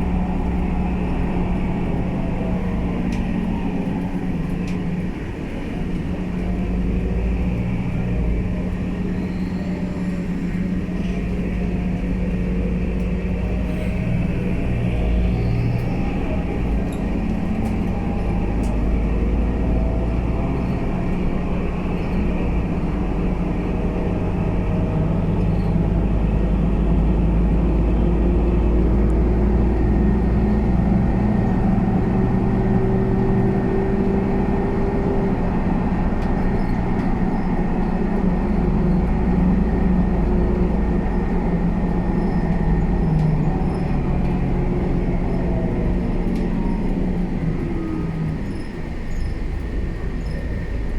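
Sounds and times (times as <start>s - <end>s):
bus diesel engine droning: 0.0s - 50.9s.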